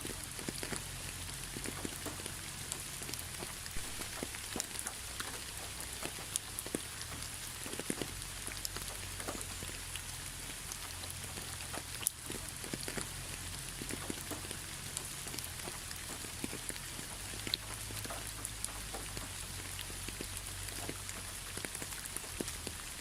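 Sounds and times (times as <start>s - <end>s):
rain falling: 0.0s - 23.0s
raindrops ticking: 0.0s - 23.0s.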